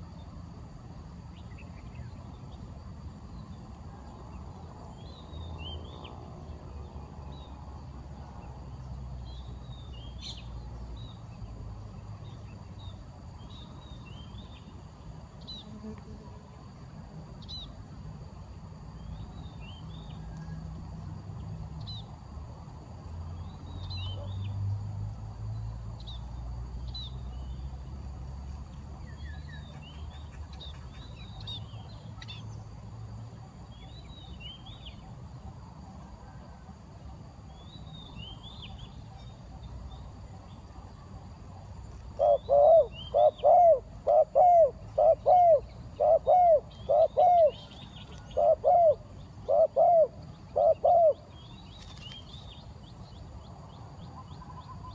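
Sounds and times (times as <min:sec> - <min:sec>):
small birds chirping: 0:41.8 - 0:54.9
dove cooing: 0:42.2 - 0:47.6, 0:48.4 - 0:51.3.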